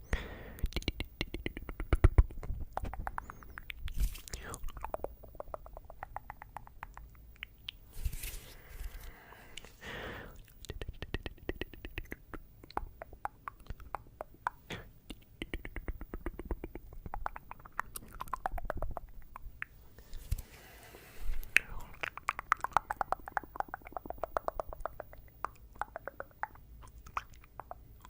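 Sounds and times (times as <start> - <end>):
breathy sounds: 0.0 - 1.6, 4.2 - 5.2, 8.2 - 10.6, 19.8 - 22.1
wet tongue clicking: 0.6 - 7.9, 10.4 - 19.8, 21.4 - 28.0.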